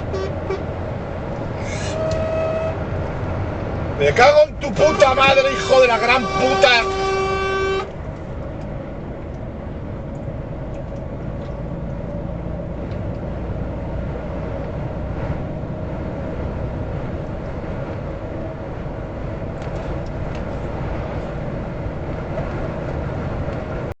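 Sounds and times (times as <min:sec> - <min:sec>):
truck horn tone: 0:00.0 - 0:00.8, 0:01.6 - 0:03.0, 0:04.5 - 0:08.0
engine and road rumble: 0:00.0 - 0:24.0.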